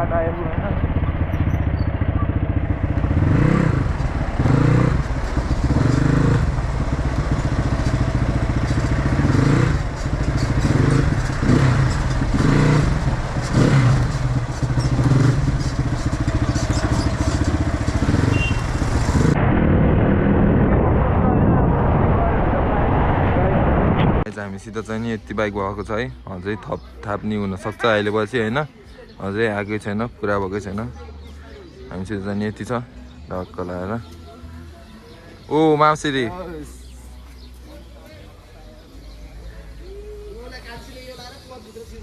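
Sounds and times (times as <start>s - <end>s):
dirt bike engines revving: 0.0s - 20.6s.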